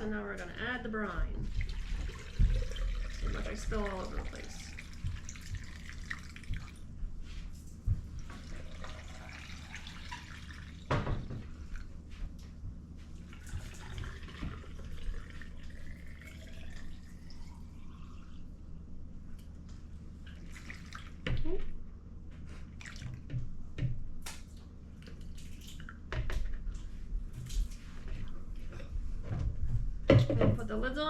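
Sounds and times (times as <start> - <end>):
liquid pouring into glass jar: 1.6 - 6.7, 8.4 - 10.9, 13.4 - 18.5.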